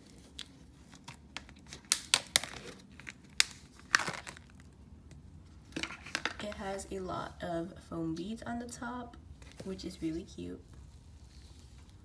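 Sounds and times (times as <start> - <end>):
crinkling tearing rustle: 0.0 - 4.8, 10.6 - 12.0.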